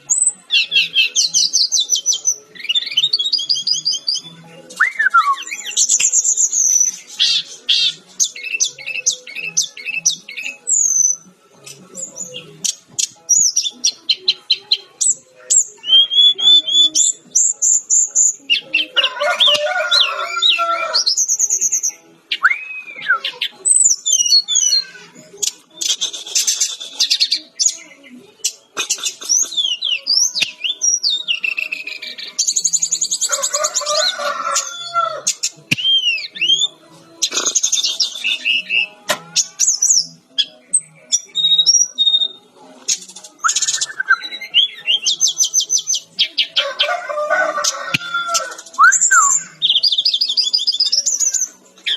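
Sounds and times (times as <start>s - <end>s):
bird singing trills and whistles: 0.0s - 19.0s, 19.9s - 46.6s, 47.9s - 51.9s.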